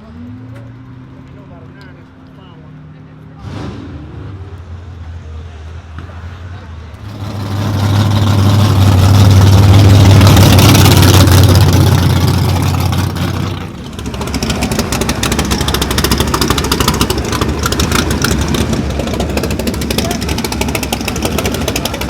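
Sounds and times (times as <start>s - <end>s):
race car engine revving: 3.3s - 4.8s, 6.9s - 22.0s.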